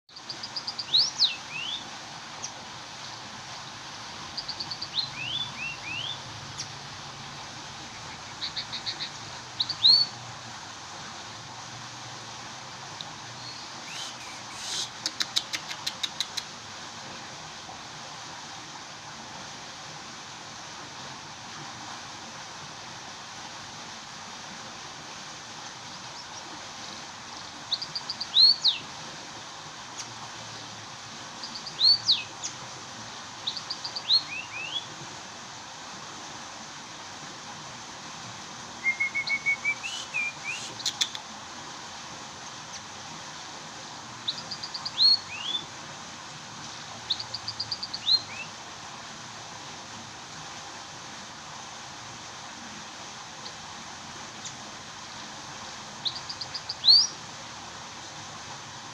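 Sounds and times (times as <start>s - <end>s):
bird chirping: 0.1s - 1.8s, 4.4s - 6.7s, 7.9s - 10.2s, 13.4s - 16.4s, 31.4s - 32.6s, 33.4s - 34.9s, 38.8s - 41.2s, 44.3s - 45.6s, 47.1s - 48.5s, 56.0s - 57.1s
background hiss: 0.1s - 58.9s.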